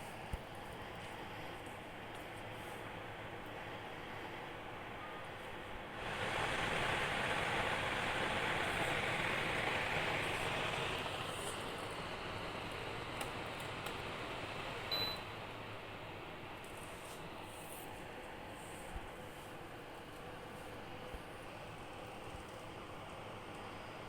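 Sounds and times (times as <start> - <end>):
air cooler fan blowing: 0.0 - 24.0
short high beep: 14.9 - 15.2.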